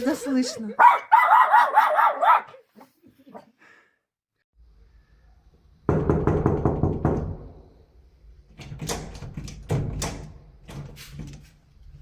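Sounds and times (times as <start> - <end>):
knocking on a door: 5.9 - 7.7.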